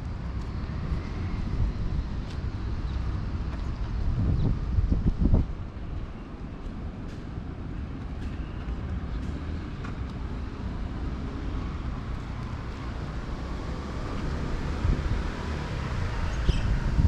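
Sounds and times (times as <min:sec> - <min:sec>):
distant traffic: 0:00.0 - 0:17.0
wind rumble on microphone: 0:00.0 - 0:17.0.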